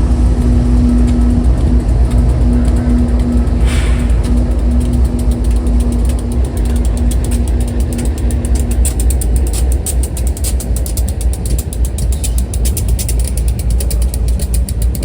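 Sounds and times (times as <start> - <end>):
pulsing tone: 0.0 - 7.2
freight train rumble: 0.0 - 15.0
wheels clicking over rails: 0.0 - 15.0.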